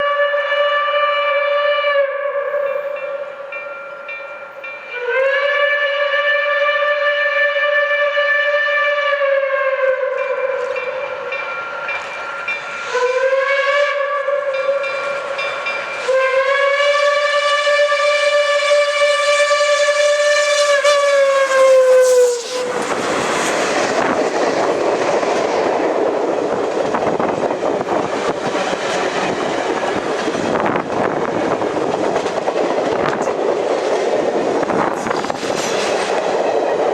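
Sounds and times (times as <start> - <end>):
steam whistle blasts: 0.0 - 3.5, 4.9 - 15.0, 16.0 - 23.5
steam train passing: 0.0 - 36.9
wheels on rail: 2.4 - 36.9.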